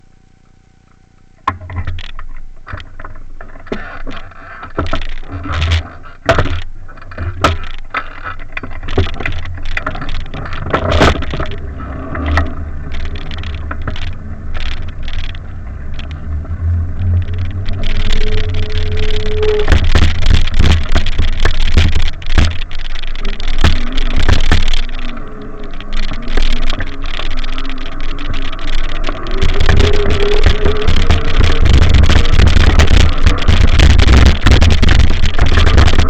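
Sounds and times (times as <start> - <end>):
bicycle clicks and rattles: 1.4 - 36.0
steady tone: 8.7 - 36.0
wind buffeting microphone: 10.3 - 36.0.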